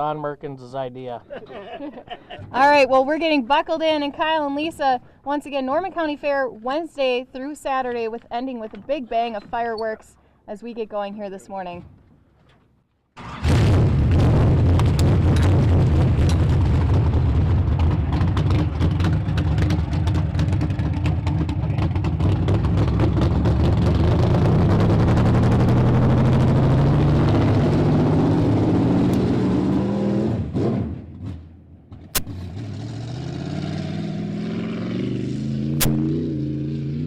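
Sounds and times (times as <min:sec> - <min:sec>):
race car engine accelerating: 0:13.2 - 0:37.0
sharp click: 0:35.8 - 0:36.1.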